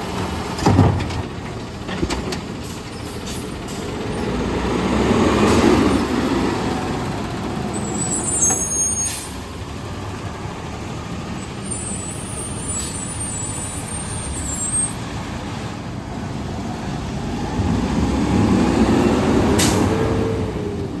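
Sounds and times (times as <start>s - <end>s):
garbage truck engine: 0.0s - 21.0s
high-pitched brake squeal: 7.7s - 9.4s, 11.4s - 15.0s.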